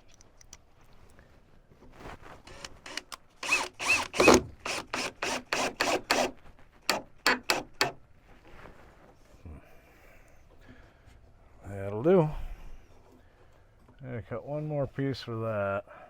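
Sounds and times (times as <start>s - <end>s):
mechanical rasping strokes: 2.5s - 8.0s.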